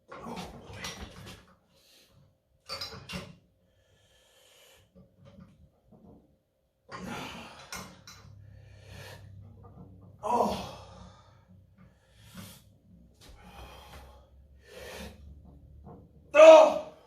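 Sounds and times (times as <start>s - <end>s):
man breathing hard: 7.0s - 9.5s, 10.3s - 15.3s.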